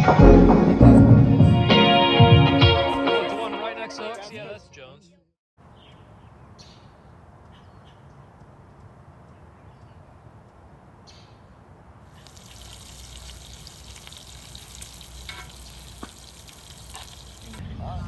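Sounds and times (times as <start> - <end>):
steady hiss of water: 12.1 - 17.6.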